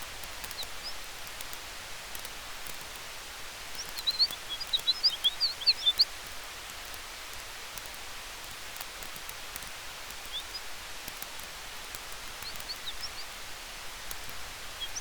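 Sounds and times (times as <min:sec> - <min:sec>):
campfire crackling: 0:00.0 - 0:15.0
wind through trees: 0:00.0 - 0:15.0
small bird twittering: 0:00.4 - 0:01.1, 0:03.7 - 0:06.2, 0:10.1 - 0:10.7, 0:12.2 - 0:13.4, 0:14.1 - 0:15.0.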